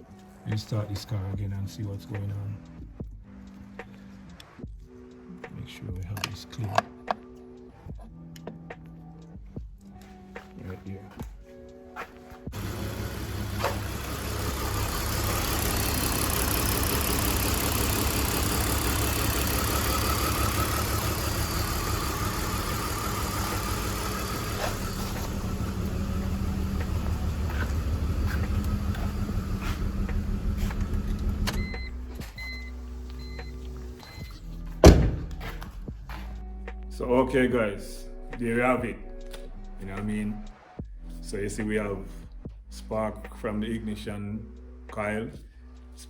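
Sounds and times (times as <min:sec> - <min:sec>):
car engine running with misfire: 0:12.5 - 0:35.4.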